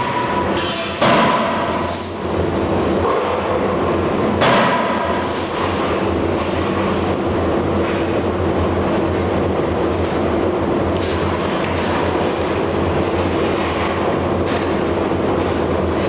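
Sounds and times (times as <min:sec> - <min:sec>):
forging hammer strike: 0:00.0 - 0:02.0, 0:04.4 - 0:05.4
machinery humming and rumbling: 0:00.0 - 0:16.0.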